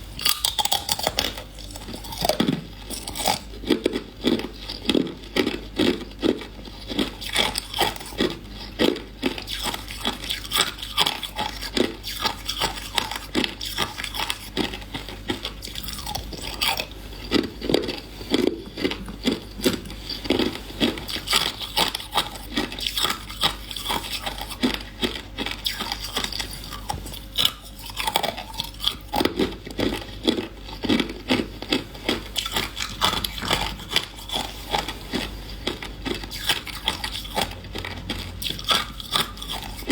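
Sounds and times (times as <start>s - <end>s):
person chewing ice: 0.0s - 39.9s.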